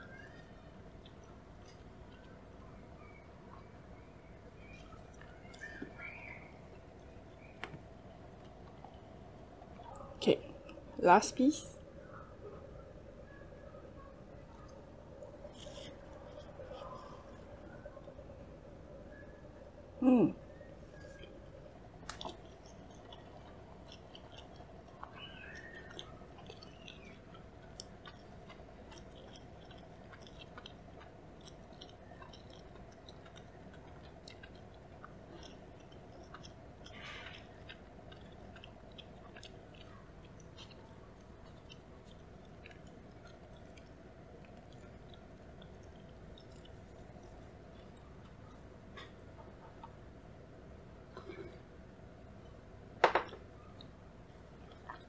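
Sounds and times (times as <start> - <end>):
chewing with wet mouth smacks: 0.0 - 11.0, 14.0 - 19.8, 20.5 - 50.2, 53.3 - 55.0
low electrical hum: 0.0 - 55.0.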